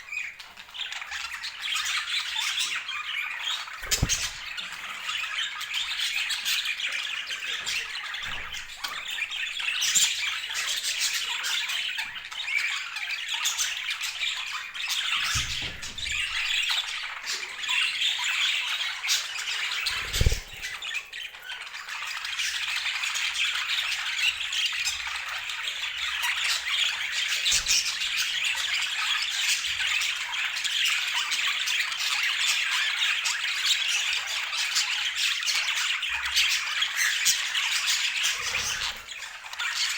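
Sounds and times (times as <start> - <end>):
budgerigars chattering and squawking: 0.1 - 39.9.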